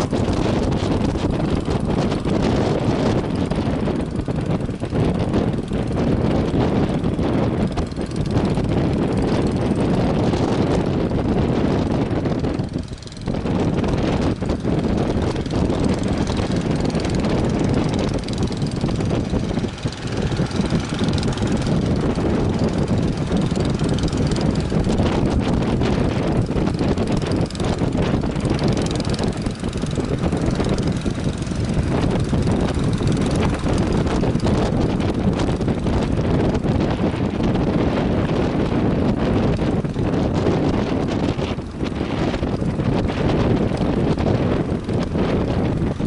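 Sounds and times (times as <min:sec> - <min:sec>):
boat motor droning: 0:00.0 - 0:46.0
wind rumbling on microphone: 0:00.0 - 0:46.0.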